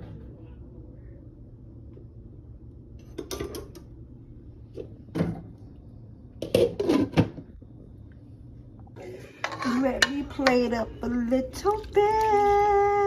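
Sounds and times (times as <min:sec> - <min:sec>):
faint low hum: 0:00.0 - 0:13.0
kitchen items knocking and clattering: 0:09.3 - 0:10.7.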